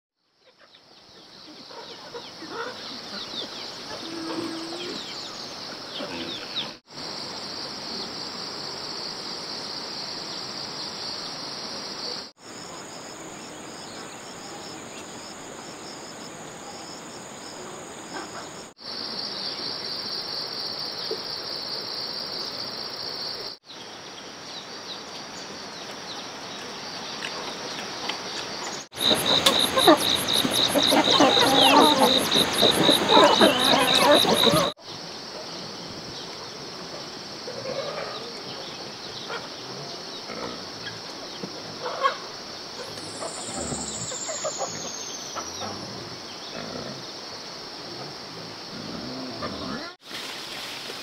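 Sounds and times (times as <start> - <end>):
insects buzzing drone: 27.9 - 51.0.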